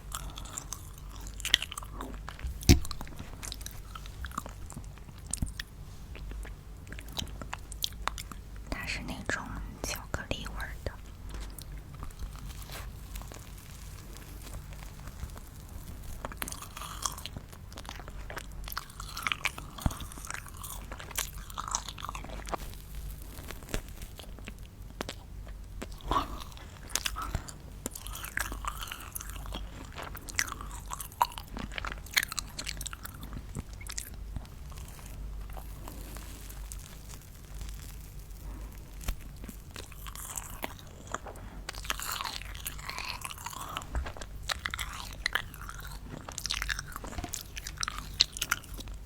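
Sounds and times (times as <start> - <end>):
wet mouth sounds: 0.0 - 13.0
chewing and crunching candy: 0.0 - 49.0.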